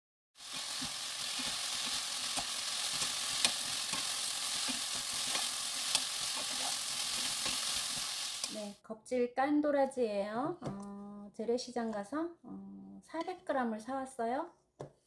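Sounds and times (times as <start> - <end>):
vegetables sizzling in a frying pan: 0.4 - 8.8.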